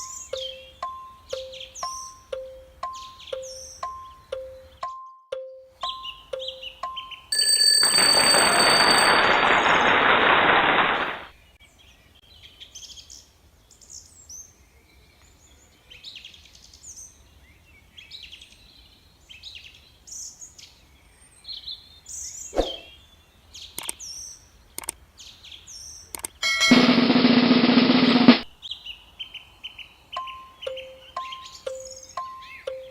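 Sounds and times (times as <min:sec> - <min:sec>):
faint bird chirps: 0:00.0 - 0:07.3, 0:21.4 - 0:25.0, 0:28.7 - 0:32.9
short beeping tones: 0:00.0 - 0:09.5
sharp click: 0:23.8 - 0:24.0, 0:24.8 - 0:25.0, 0:26.1 - 0:26.4.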